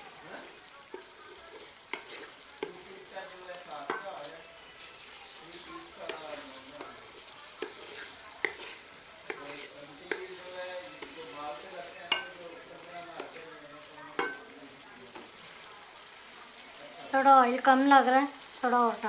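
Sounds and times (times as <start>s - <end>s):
oil sizzling: 0.0s - 19.0s
spoon knocking against pot: 3.9s - 4.1s, 8.4s - 9.5s, 10.1s - 10.4s, 12.1s - 12.4s, 14.2s - 14.4s.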